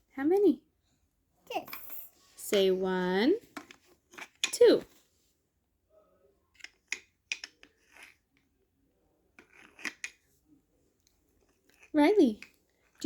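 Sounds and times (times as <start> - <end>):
wooden toy pieces clicking: 6.6 - 8.2, 9.4 - 10.2.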